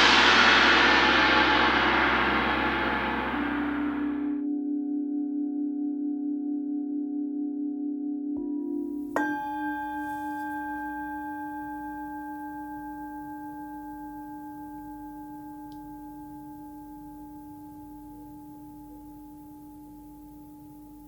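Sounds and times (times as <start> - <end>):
singing bowl ringing: 8.7 - 21.0.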